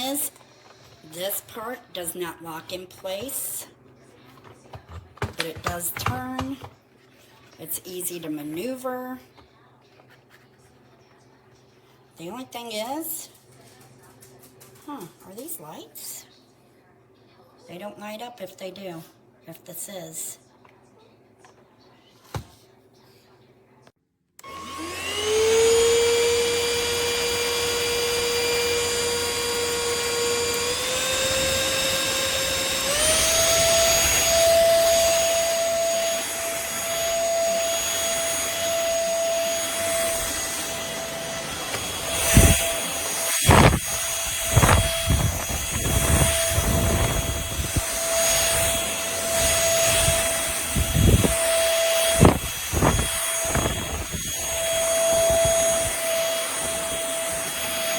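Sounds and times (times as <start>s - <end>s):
vacuum cleaner motor whine: 24.4s - 57.9s.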